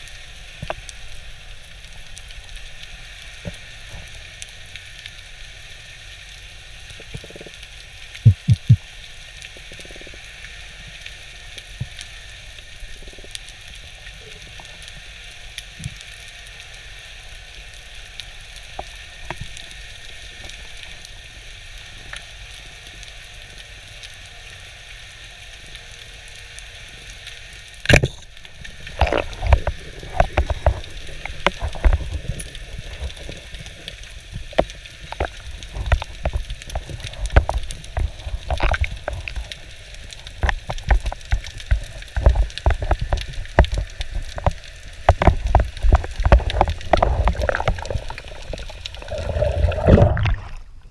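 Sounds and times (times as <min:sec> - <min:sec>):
underwater crackle and hiss: 0:00.0 - 0:50.9
irregular knocks and thumps: 0:08.2 - 0:08.8.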